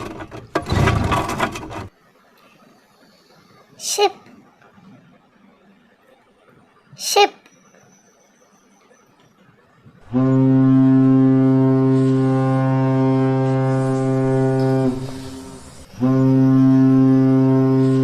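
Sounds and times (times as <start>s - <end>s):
deep ship's horn blasts: 10.0s - 18.0s.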